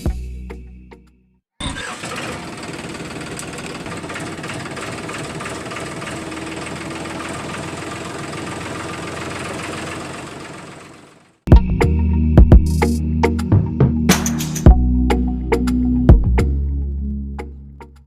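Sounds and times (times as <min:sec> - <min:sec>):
small motor humming and rattling: 0:02.0 - 0:11.4.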